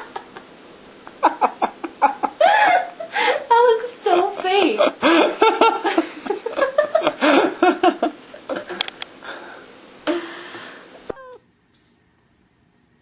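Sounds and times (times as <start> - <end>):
people talking: 3.5 - 4.9, 11.1 - 12.0.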